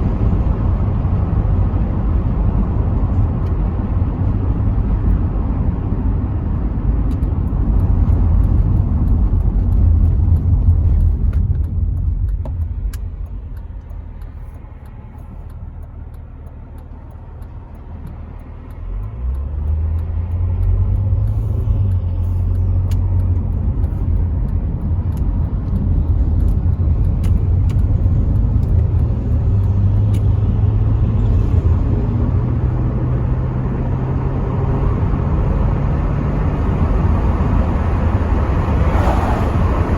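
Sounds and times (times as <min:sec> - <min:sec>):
car engine: 0:00.0 - 0:39.9
wind through open windows: 0:16.9 - 0:39.9.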